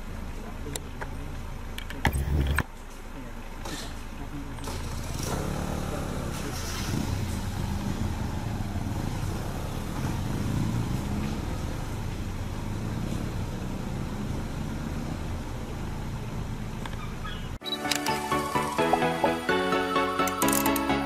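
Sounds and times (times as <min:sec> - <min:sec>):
vehicle engine running: 0:00.0 - 0:02.8, 0:04.2 - 0:17.6.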